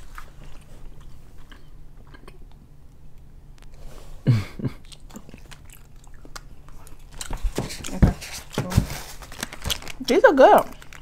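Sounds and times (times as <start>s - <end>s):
chewing with mouth clicks: 0.0s - 3.8s, 4.7s - 8.6s, 10.6s - 11.0s.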